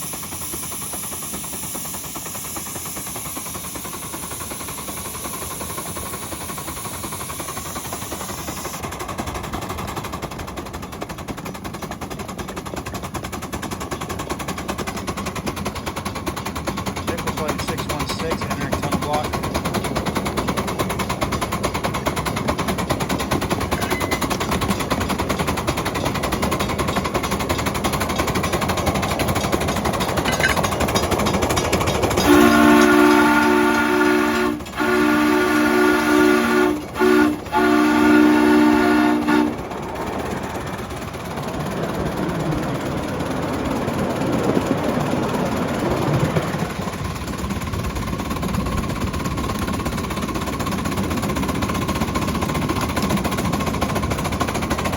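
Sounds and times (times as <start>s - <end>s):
train running noise: 0.0s - 54.9s
locomotive chime whistle blasts: 32.2s - 39.6s.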